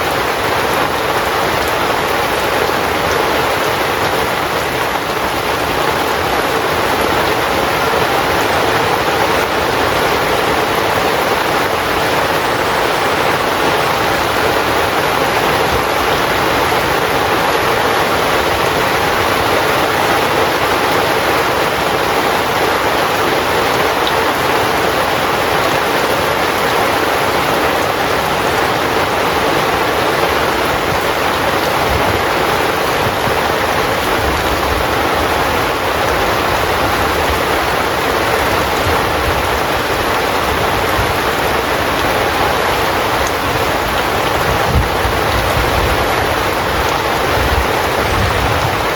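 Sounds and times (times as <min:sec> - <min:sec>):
heavy rain on a tent: 0:00.0 - 0:48.9.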